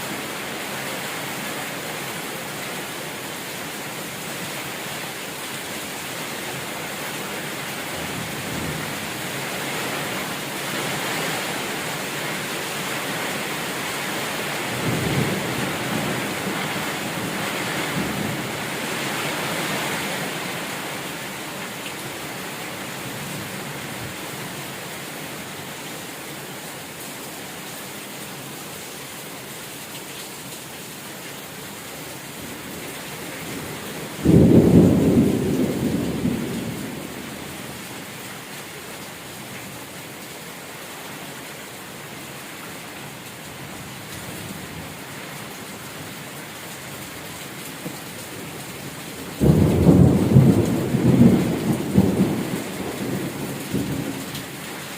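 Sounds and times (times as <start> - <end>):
heavy rain falling: 0.0 - 54.9
low thunder rumbles: 34.1 - 37.6, 49.4 - 54.2.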